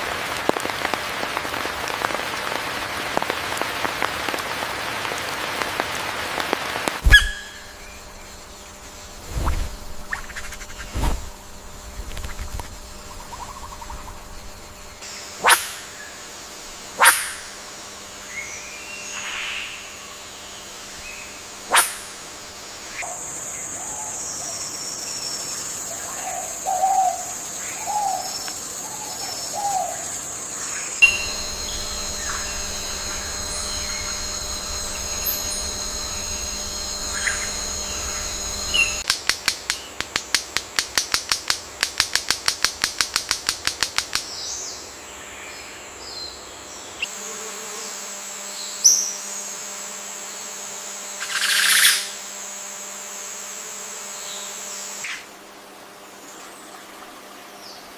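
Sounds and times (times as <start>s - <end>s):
steady high buzz: 6.9s - 23.8s, 29.4s - 56.2s
fast run of sharp pulses: 7.0s - 15.0s, 31.0s - 39.1s
wild birds calling: 7.0s - 16.2s, 25.9s - 39.0s.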